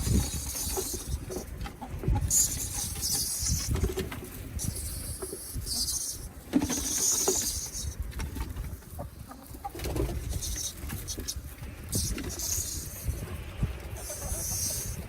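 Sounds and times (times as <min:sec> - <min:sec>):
cicadas buzzing: 0:04.6 - 0:08.1, 0:10.2 - 0:15.0.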